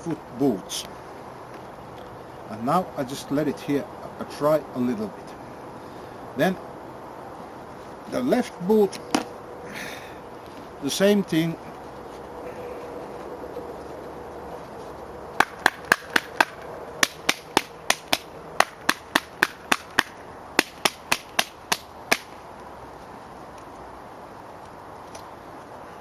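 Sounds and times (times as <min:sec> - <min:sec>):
rapid sharp taps: 0:15.4 - 0:22.3.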